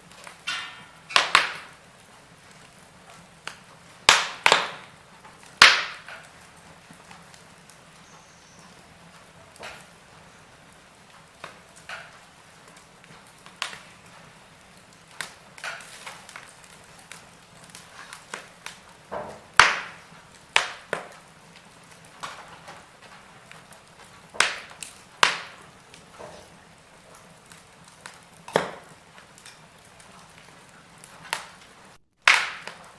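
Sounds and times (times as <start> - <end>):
faint steady hiss: 0.0 - 32.9
wood fire crackling: 0.0 - 32.9.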